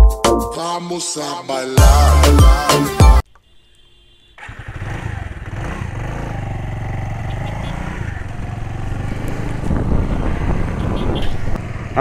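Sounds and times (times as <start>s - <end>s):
motorcycle engine running: 4.4s - 12.0s.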